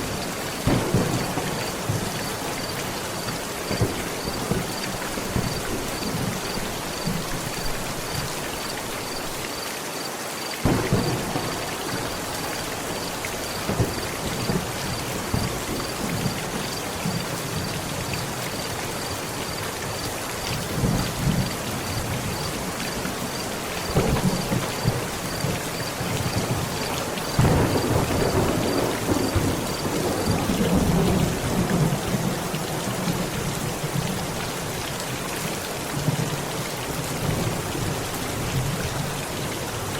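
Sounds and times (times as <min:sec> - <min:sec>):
thunder rumbling: 0:00.0 - 0:08.4, 0:10.6 - 0:18.4, 0:23.2 - 0:34.0
heavy rain drumming on a tent: 0:00.0 - 0:39.9.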